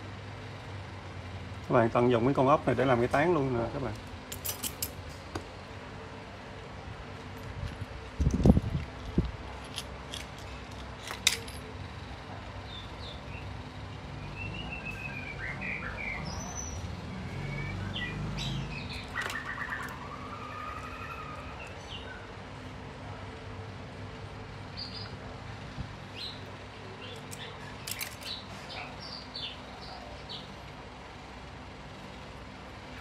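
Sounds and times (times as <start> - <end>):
birds chirping: 12.6 - 22.6, 24.7 - 25.2, 26.1 - 30.6.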